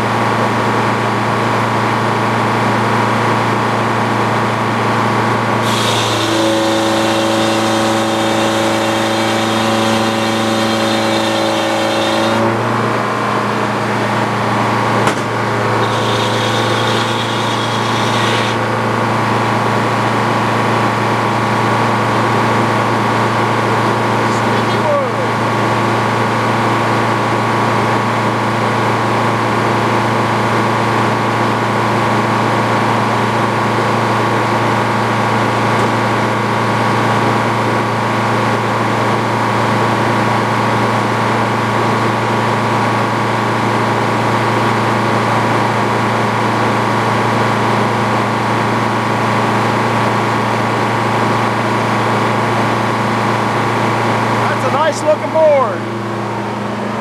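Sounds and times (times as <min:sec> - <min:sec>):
sawmill humming: 0:02.3 - 0:27.2, 0:38.9 - 0:57.0
saw blade whine: 0:05.2 - 0:20.6.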